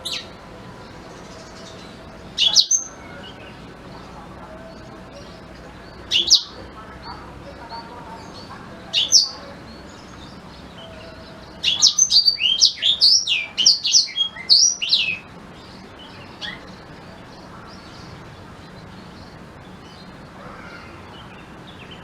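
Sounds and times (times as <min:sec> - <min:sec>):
canary singing whistled notes: 0:01.2 - 0:03.6, 0:04.8 - 0:09.5, 0:10.3 - 0:15.2.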